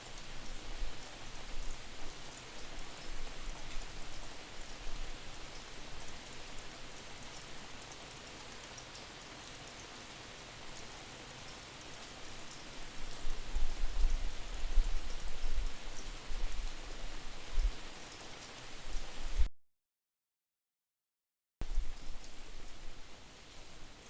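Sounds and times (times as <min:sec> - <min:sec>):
wind buffeting microphone: 0:13.3 - 0:16.8.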